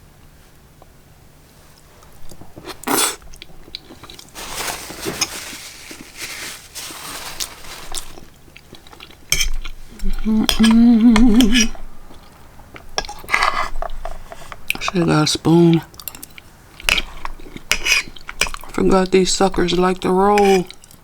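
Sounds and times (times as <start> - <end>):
person humming: 10.0 - 11.8
fork scraping a plate: 13.0 - 14.6, 16.8 - 18.7.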